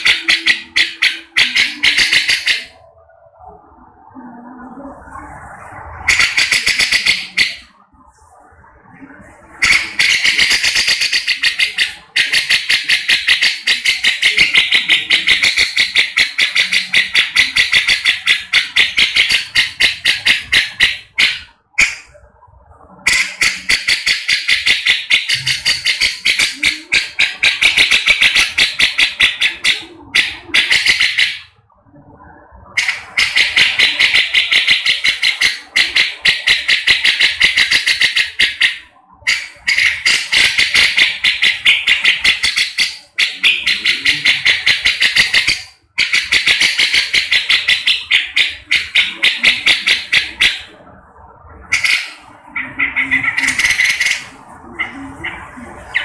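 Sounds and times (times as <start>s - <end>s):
bird harsh chattering calls: 0.0s - 3.0s, 5.8s - 7.8s, 9.5s - 22.3s, 22.9s - 31.6s, 32.7s - 56.0s.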